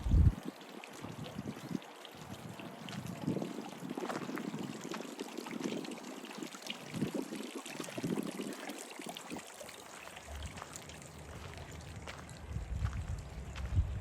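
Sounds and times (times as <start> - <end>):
running splashing water: 0.2 - 14.0
low rumble: 10.2 - 14.0.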